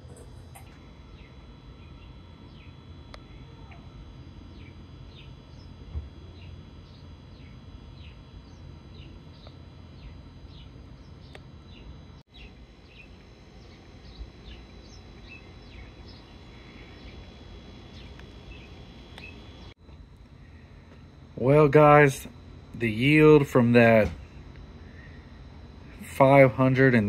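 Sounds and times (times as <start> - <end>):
bird chirping: 0.5 - 19.7.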